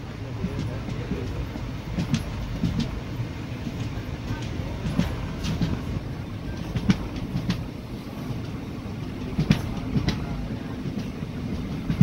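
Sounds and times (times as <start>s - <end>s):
train coach rumbling on rails: 0.0s - 12.0s
wheels clicking over rail joints: 0.3s - 7.7s, 8.3s - 12.0s.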